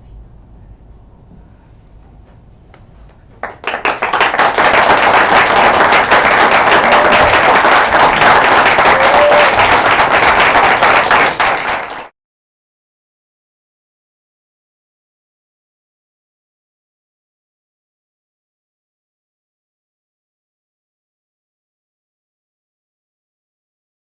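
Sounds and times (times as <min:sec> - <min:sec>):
audience applauding: 0:03.4 - 0:12.1.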